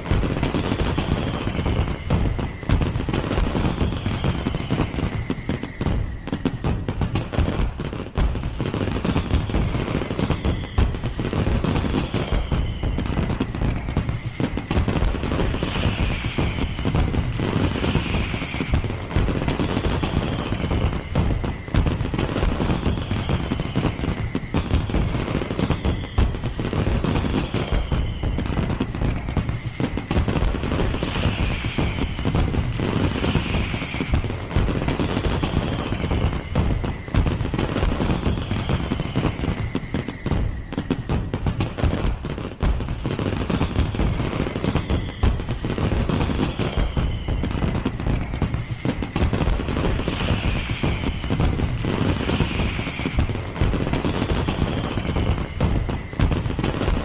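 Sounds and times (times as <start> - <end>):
fireworks bangs and crackles: 0.0 - 57.0
high falling whistle tone: 0.6 - 7.8, 9.0 - 41.7, 43.2 - 57.0.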